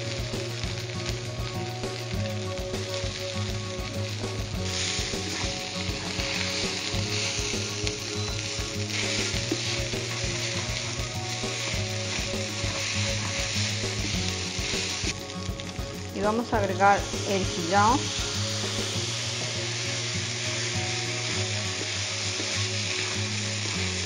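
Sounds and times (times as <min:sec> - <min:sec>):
food sizzling in oil: 0:00.0 - 0:24.0
spatula stirring in pan: 0:04.5 - 0:16.0.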